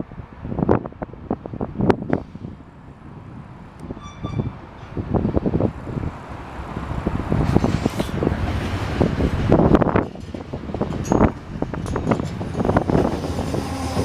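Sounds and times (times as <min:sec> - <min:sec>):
wind buffeting microphone: 0:00.0 - 0:14.0
subway train approaching: 0:01.9 - 0:14.0
high double tone: 0:04.0 - 0:04.6.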